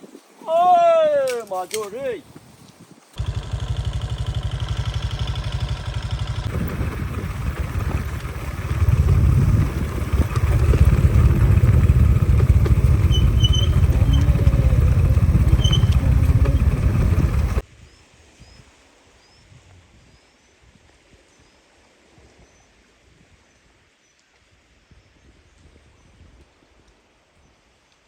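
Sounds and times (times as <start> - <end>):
small engine running: 3.2 - 17.6.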